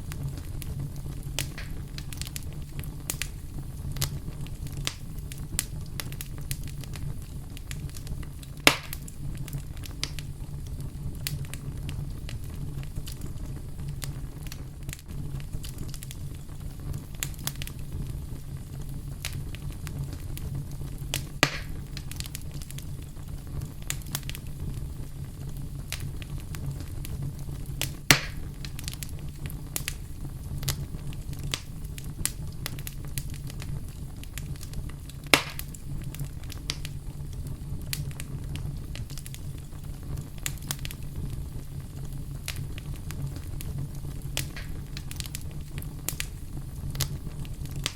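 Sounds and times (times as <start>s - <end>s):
campfire crackling: 0.0s - 47.9s
loud sharp pops: 1.4s - 2.3s, 8.6s - 9.1s, 21.1s - 22.1s, 27.8s - 29.0s, 35.2s - 35.8s, 44.4s - 45.4s.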